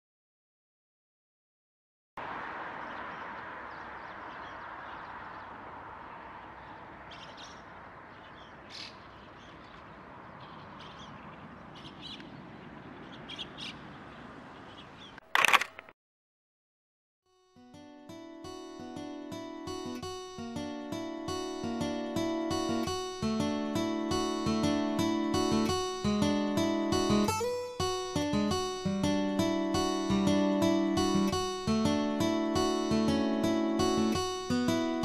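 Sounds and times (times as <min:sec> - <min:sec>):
outdoor ambience hiss: 0:02.2 - 0:15.8
birds calling: 0:02.2 - 0:15.9.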